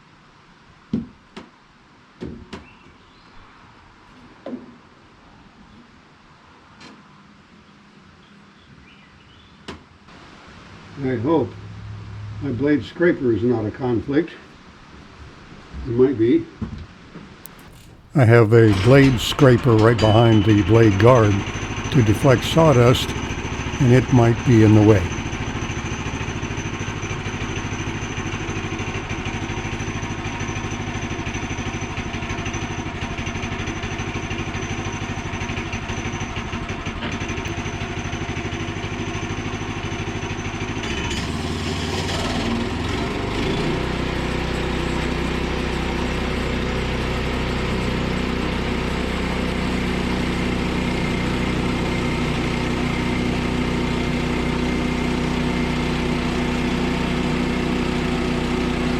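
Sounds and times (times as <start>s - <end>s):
bandsaw mill engine running: 17.6s - 30.4s, 45.9s - 58.9s.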